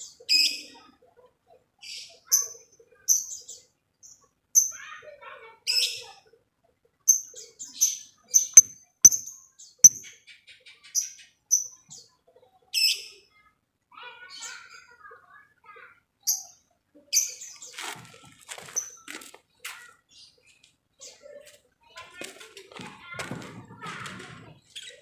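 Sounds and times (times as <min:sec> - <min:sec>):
lovebird chirping: 0:08.5 - 0:09.2.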